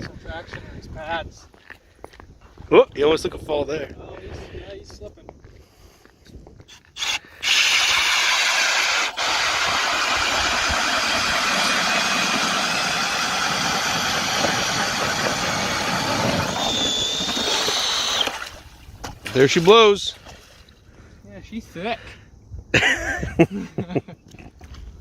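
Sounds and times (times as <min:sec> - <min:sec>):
ice auger drilling: 0:06.7 - 0:19.5.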